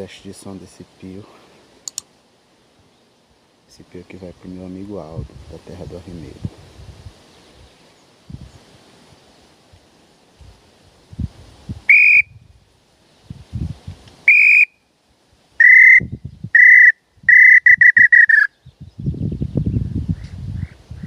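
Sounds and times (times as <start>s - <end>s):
bird-call whistle blown: 11.9s - 12.4s, 14.2s - 14.8s, 15.6s - 18.6s.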